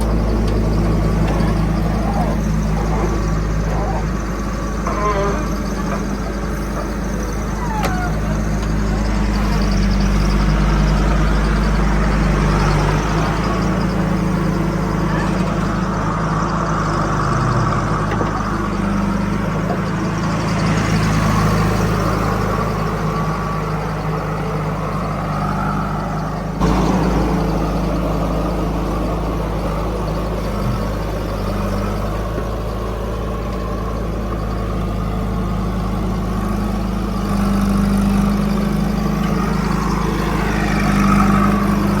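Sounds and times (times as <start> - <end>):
heavy diesel engine running: 0.0 - 42.0.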